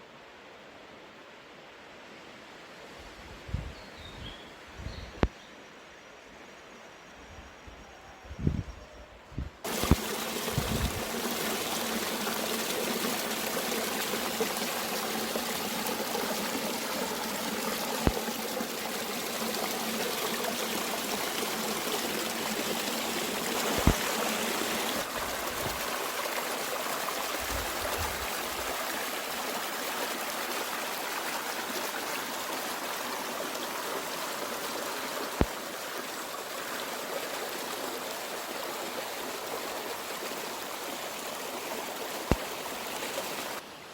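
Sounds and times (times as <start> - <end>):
stream flowing and trickling: 9.6 - 43.9.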